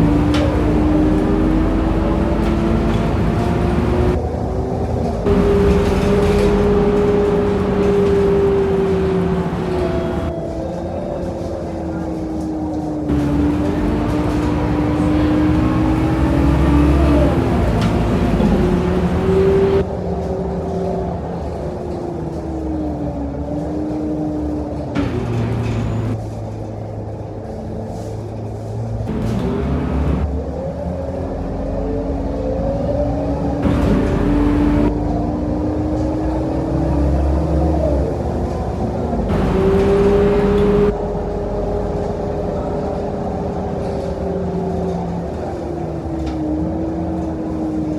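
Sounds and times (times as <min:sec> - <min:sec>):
drivetrain whine: 0:00.0 - 0:10.3, 0:13.1 - 0:19.9, 0:29.1 - 0:30.3, 0:33.6 - 0:35.0, 0:38.0 - 0:45.6
bus diesel engine rumble: 0:00.0 - 0:47.9.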